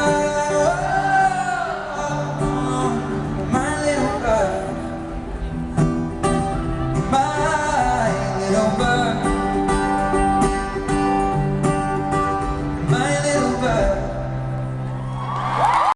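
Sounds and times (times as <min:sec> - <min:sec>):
amplified acoustic guitar: 0:00.0 - 0:15.4.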